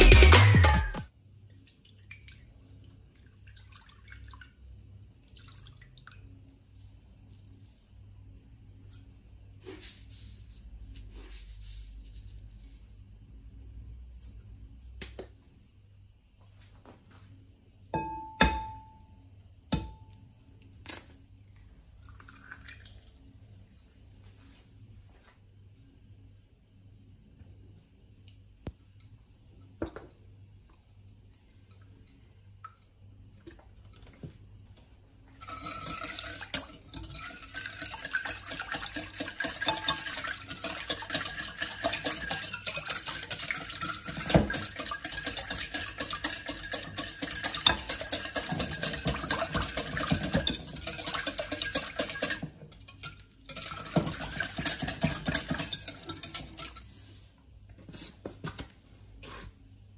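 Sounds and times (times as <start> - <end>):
utensil stirring in a bowl: 35.4 - 57.3.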